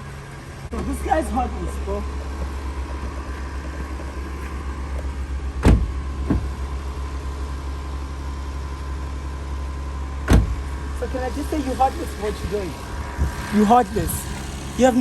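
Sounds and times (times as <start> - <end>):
car engine idling: 0.0 - 15.0
short knocks: 2.1 - 6.7.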